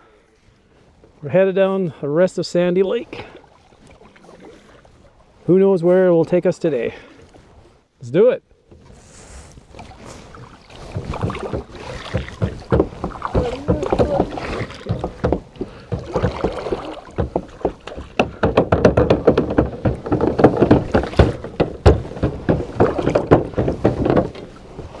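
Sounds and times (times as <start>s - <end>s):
paddles splashing in water: 3.0s - 5.4s, 8.7s - 25.0s
water gurgling and dripping: 8.8s - 25.0s.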